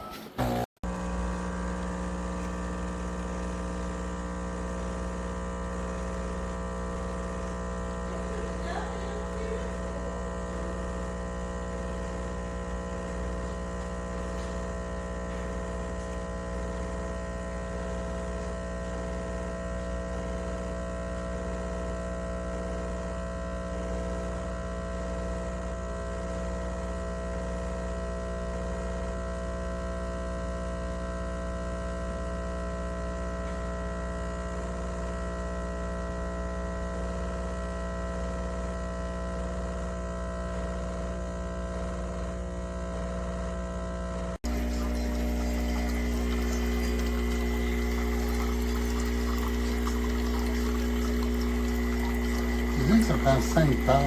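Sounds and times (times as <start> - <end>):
steady electrical hum: 44.2 - 54.0.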